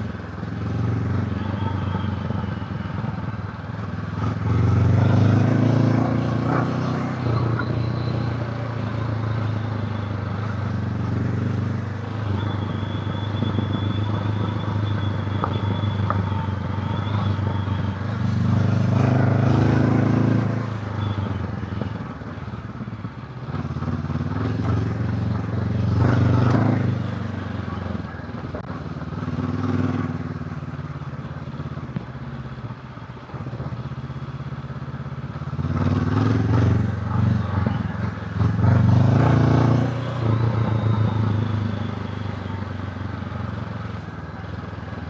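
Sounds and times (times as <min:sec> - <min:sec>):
motorcycle engine revving: 0:13.2 - 0:21.9, 0:35.1 - 0:44.2.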